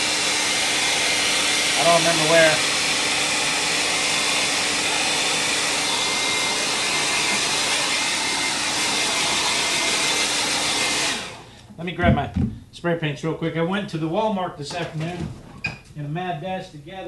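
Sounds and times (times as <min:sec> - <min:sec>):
hair dryer blowing air: 0:00.0 - 0:11.6.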